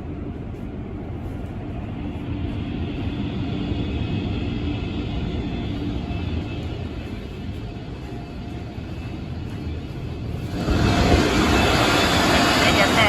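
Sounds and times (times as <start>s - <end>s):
dryer blowers roaring: 9.4s - 13.0s.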